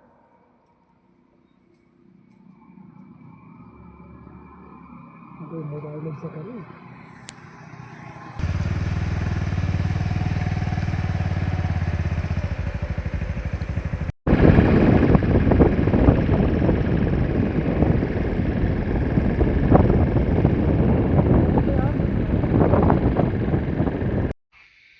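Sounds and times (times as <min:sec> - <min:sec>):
rough engine rumble: 0:02.5 - 0:24.4
vehicle engine running: 0:07.1 - 0:24.4
wind buffeting microphone: 0:08.0 - 0:24.4.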